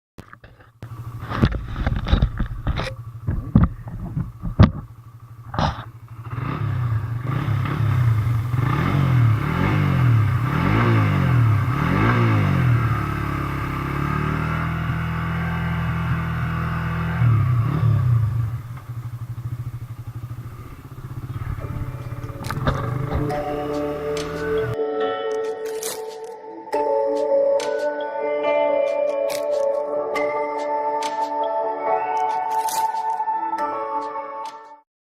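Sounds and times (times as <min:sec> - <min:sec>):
sharp knocks and thumps: 0:00.2 - 0:05.9, 0:21.4 - 0:24.5
motorcycle engine revving: 0:00.8 - 0:24.8.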